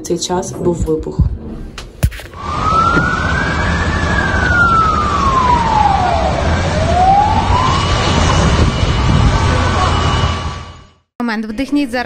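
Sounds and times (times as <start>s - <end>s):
low rumble of street noise: 0.0s - 11.0s
siren wailing: 2.4s - 11.1s.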